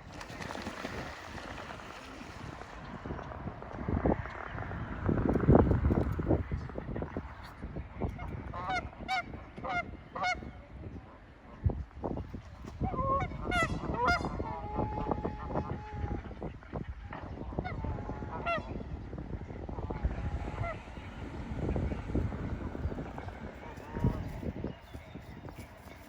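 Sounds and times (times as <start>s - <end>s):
low rumble: 17.8s - 24.4s.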